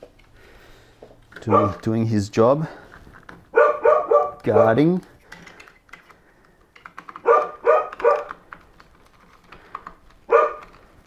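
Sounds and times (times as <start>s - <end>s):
dog barking: 1.4s - 1.9s, 3.5s - 4.9s, 7.2s - 8.4s, 10.3s - 10.8s.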